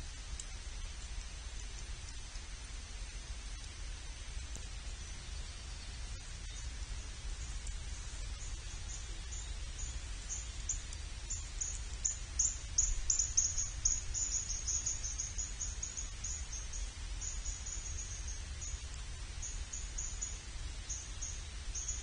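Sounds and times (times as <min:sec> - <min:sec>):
steady low rumble: 0:00.0 - 0:22.0
small bird chirping: 0:04.5 - 0:22.0.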